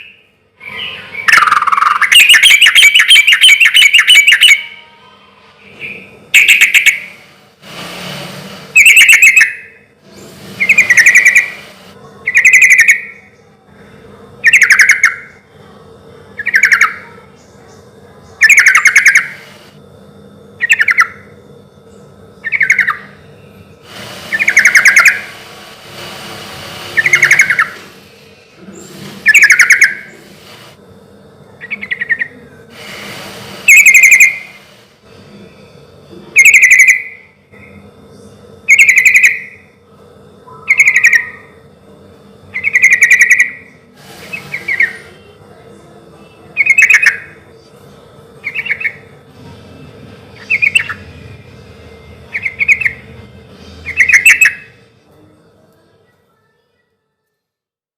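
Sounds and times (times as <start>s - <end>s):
bulbul singing: 0.0s - 4.9s, 5.6s - 7.2s, 8.7s - 13.5s, 14.4s - 15.4s, 16.4s - 19.5s, 20.6s - 25.4s, 27.0s - 28.0s, 28.7s - 30.3s, 31.6s - 32.5s, 33.6s - 34.6s, 36.4s - 37.8s, 38.6s - 39.7s, 40.6s - 41.6s, 42.5s - 45.3s, 46.5s - 47.4s, 48.4s - 49.2s, 50.3s - 53.2s, 53.8s - 54.8s.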